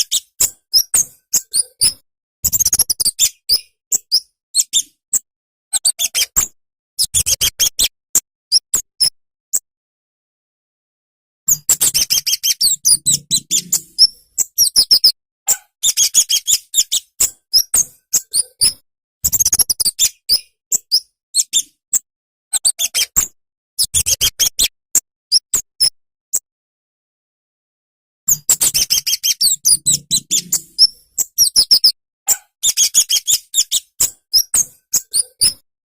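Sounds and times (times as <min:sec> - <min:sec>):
bird chirping and twittering: 0:00.0 - 0:05.0, 0:11.5 - 0:21.7, 0:28.3 - 0:35.6.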